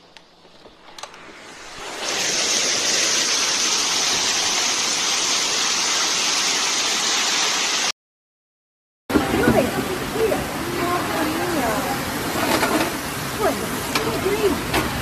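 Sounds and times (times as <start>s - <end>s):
heavy rain and wind: 9.1s - 15.0s.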